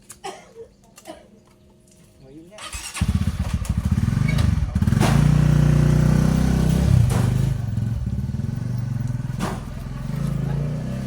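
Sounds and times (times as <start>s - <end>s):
small motorcycle engine running: 2.8s - 11.0s.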